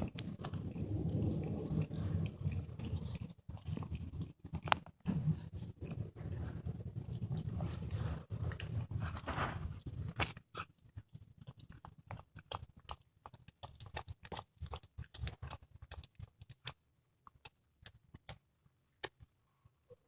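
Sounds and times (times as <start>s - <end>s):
cat crunching on bone: 0.0s - 5.0s, 5.6s - 18.4s
cat purring: 0.0s - 10.2s.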